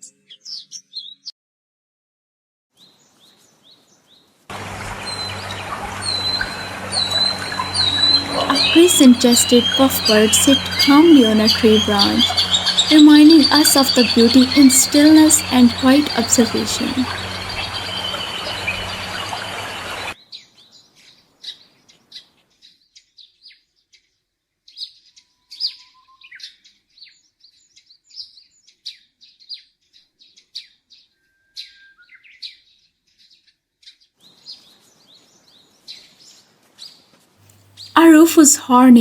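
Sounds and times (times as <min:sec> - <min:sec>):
thin high steady whine: 0:04.5 - 0:20.2
small birds chirping: 0:04.7 - 0:20.2.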